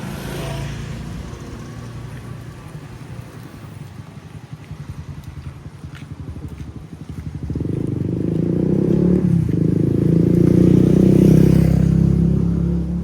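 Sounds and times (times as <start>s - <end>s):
vehicle engine passing by: 0.0s - 3.0s, 6.0s - 13.0s.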